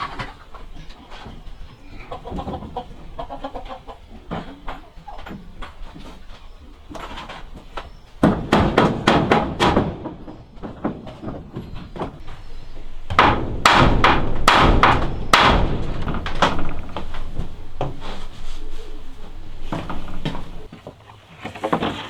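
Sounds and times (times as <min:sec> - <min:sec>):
hammer blows on wood: 0:06.9 - 0:20.7.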